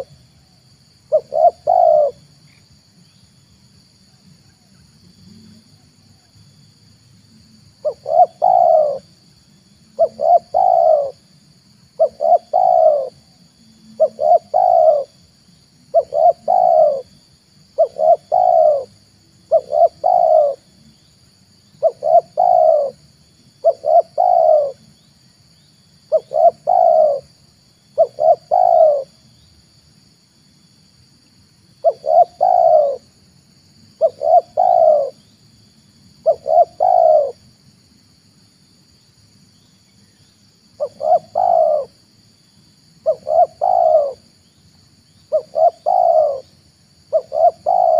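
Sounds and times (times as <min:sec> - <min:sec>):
dove cooing: 0:01.1 - 0:02.3, 0:07.8 - 0:09.1, 0:09.9 - 0:11.2, 0:12.0 - 0:15.2, 0:15.9 - 0:20.7, 0:21.8 - 0:23.0, 0:23.6 - 0:24.8, 0:26.1 - 0:27.4, 0:28.0 - 0:29.2, 0:31.8 - 0:33.1, 0:34.0 - 0:35.2, 0:36.2 - 0:37.4, 0:40.8 - 0:42.0, 0:43.0 - 0:44.2, 0:45.2 - 0:47.9.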